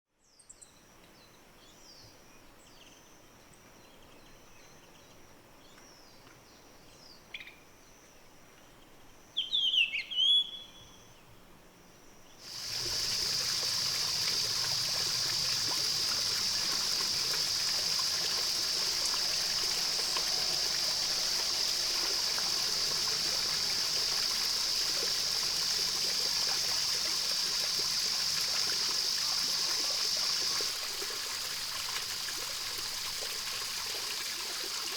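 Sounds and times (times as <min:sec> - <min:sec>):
flowing stream rushing: 0:12.4 - 0:34.9.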